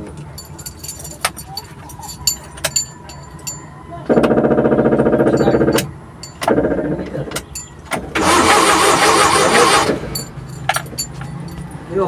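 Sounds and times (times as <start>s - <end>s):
engine cranking on starter: 8.0s - 10.3s.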